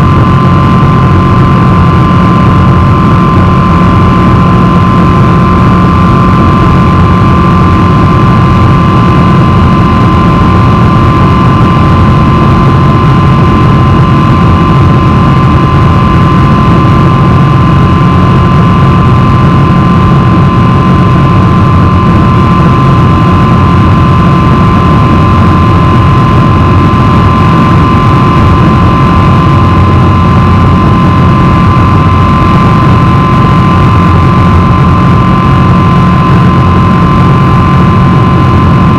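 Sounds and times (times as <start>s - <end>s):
jet engines rumbling and whining: 0.0s - 38.9s.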